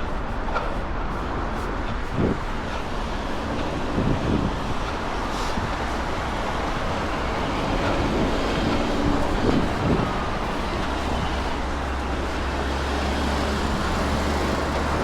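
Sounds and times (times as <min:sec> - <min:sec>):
cars passing: 0:00.0 - 0:15.0
road traffic: 0:00.0 - 0:15.0
wind buffeting microphone: 0:00.0 - 0:15.0.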